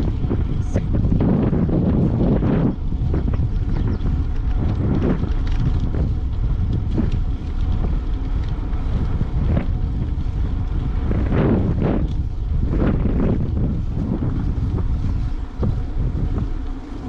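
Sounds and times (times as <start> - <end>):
faint ticks and rattles: 0.0 - 17.0
wind buffeting microphone: 0.0 - 17.0.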